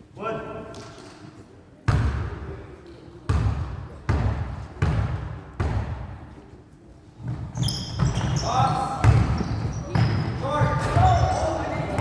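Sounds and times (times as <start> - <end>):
basketball bouncing on gym floor: 3.3 - 6.2, 7.2 - 12.0.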